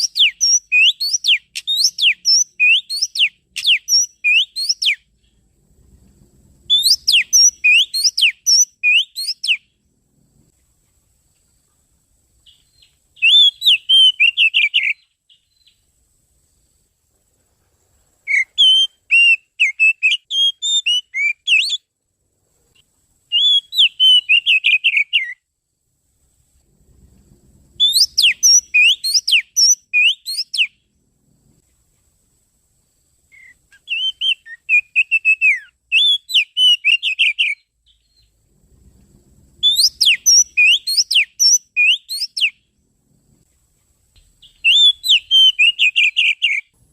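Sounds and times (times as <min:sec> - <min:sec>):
bird whistled song: 0:00.0 - 0:05.4, 0:06.7 - 0:09.8, 0:12.4 - 0:15.8, 0:18.2 - 0:21.9, 0:23.3 - 0:25.5, 0:27.8 - 0:30.9, 0:33.3 - 0:38.4, 0:39.6 - 0:42.7, 0:44.4 - 0:46.8.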